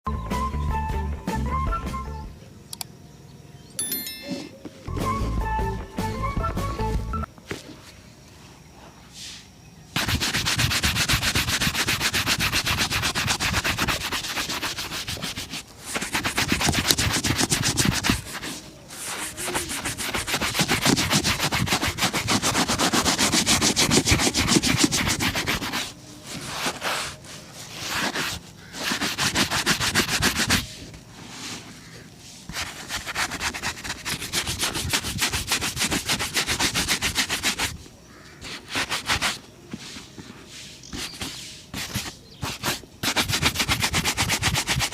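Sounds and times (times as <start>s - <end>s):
brush on a shoe: 9.2s - 44.9s.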